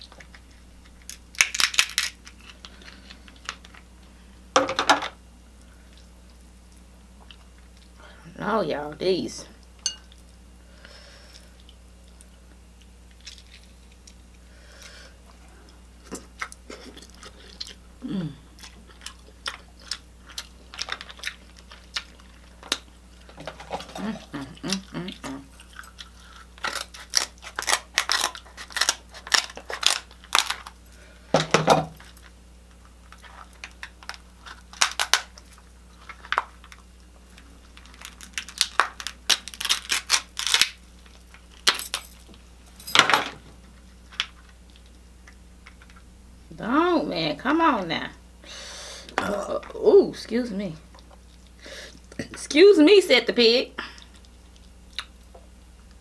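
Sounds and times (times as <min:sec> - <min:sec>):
chewing with sharp cracks: 0:05.6 - 0:08.0, 0:11.3 - 0:17.8, 0:18.4 - 0:31.2, 0:32.0 - 0:42.4, 0:43.6 - 0:46.1, 0:50.9 - 0:52.3, 0:53.8 - 0:56.0.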